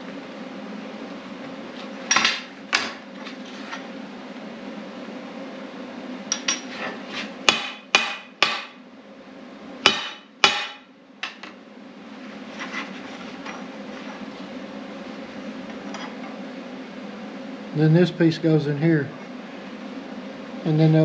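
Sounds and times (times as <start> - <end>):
hammer striking steel: 7.5 - 8.8, 9.9 - 11.4.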